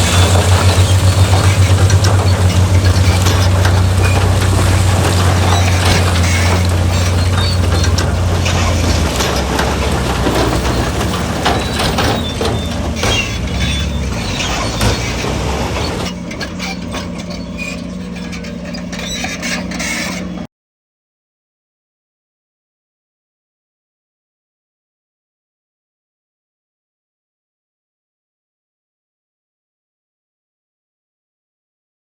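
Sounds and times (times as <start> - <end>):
clanking and knocking: 0.0 - 20.3
diesel construction machinery running: 0.0 - 20.5.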